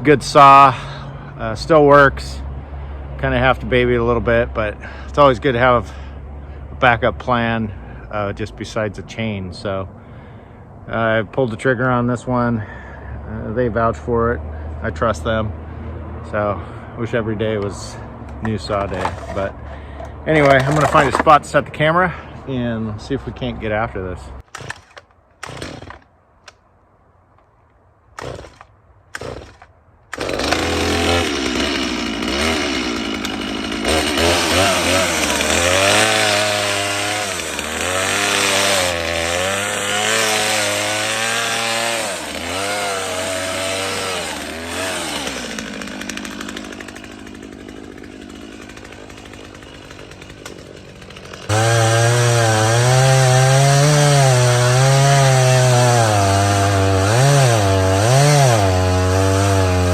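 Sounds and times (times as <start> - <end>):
chainsaw cutting wood: 17.6 - 21.4, 24.4 - 26.6, 28.2 - 59.9.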